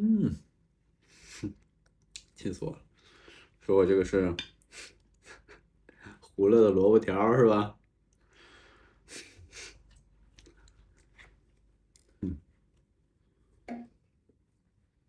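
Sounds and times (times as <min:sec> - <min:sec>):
chewing fried potato: 0:09.8 - 0:11.3.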